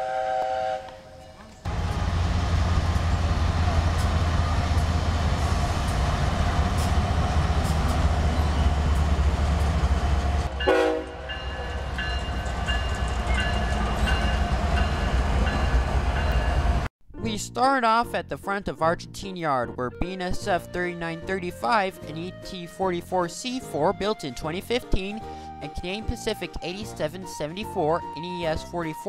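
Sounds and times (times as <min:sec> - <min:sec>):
train horn: 0:00.0 - 0:02.3, 0:10.5 - 0:11.6
diesel locomotives rumbling: 0:00.0 - 0:16.9.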